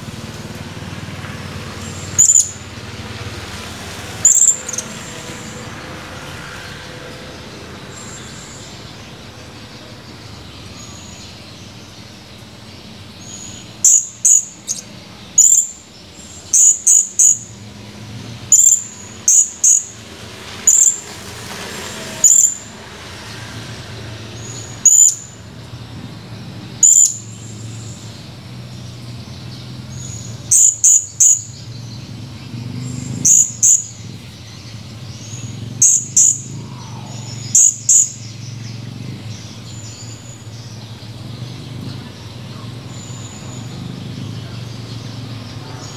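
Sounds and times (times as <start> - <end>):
parrot shrill high calls: 2.2 - 2.6.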